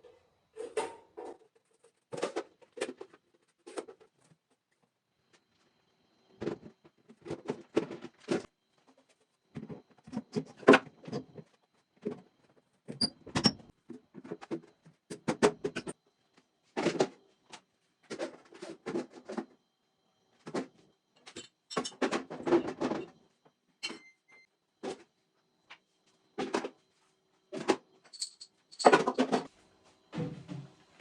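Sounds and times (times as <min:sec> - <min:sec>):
objects knocking and clattering: 0:20.4 - 0:23.2, 0:27.5 - 0:29.5.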